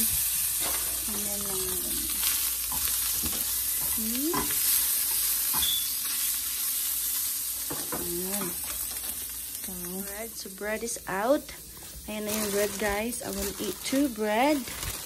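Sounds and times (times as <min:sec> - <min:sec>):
sausages sizzling in a frying pan: 0:00.0 - 0:15.0.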